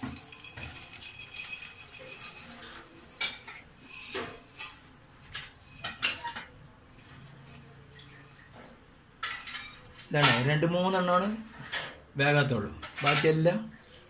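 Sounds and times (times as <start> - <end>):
popcorn scooped from metal pot: 0.0 - 6.5.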